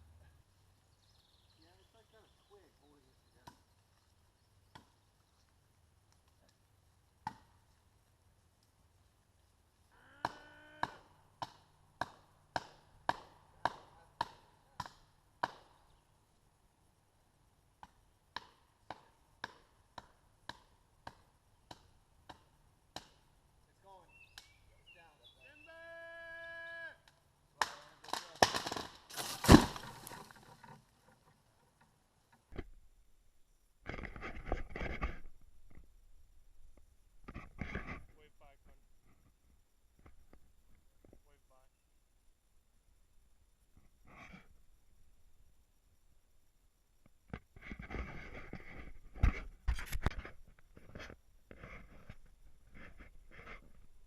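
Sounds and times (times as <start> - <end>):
axe chopping wood: 10.2 - 15.8, 17.8 - 23.2, 27.6 - 30.3.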